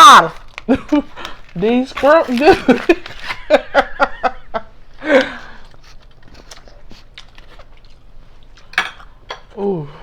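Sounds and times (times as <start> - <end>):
woman laughing: 0.7 - 1.3, 2.3 - 5.4.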